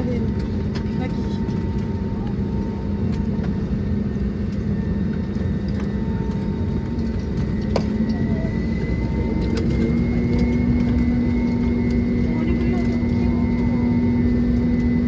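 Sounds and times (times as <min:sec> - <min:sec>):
aircraft engine rumble and whine: 0:00.0 - 0:15.0.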